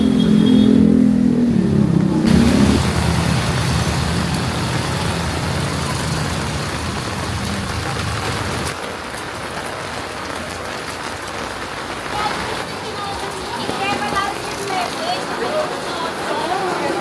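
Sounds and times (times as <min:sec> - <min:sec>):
vehicle engine drone: 0:00.0 - 0:08.7
city street traffic: 0:00.0 - 0:17.0
heavy rain: 0:00.0 - 0:17.0.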